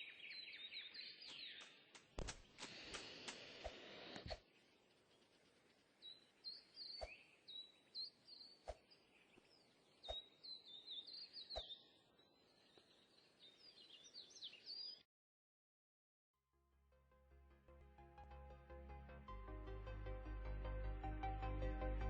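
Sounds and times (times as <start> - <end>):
faint bird chirping: 0.0 - 15.0.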